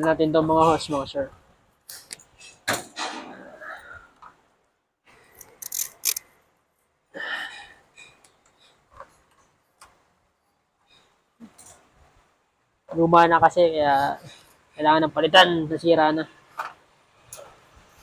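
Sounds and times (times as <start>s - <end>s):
hand tools clicking and scraping: 5.3s - 6.3s.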